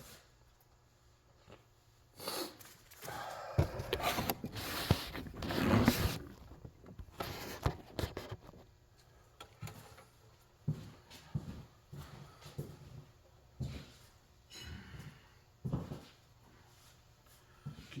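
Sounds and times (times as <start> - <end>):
tire rubbing and scraping on rim: 4.0 - 7.7.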